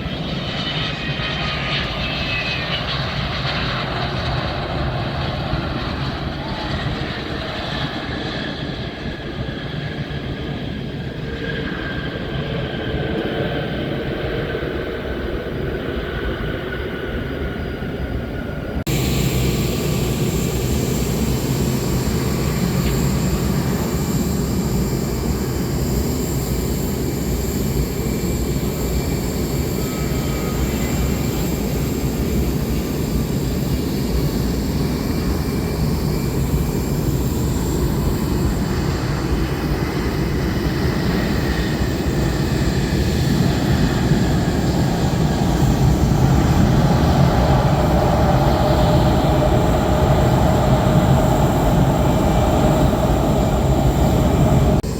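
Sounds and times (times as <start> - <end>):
jet engines rumbling: 0.0 - 54.9
humming tone: 18.9 - 54.9.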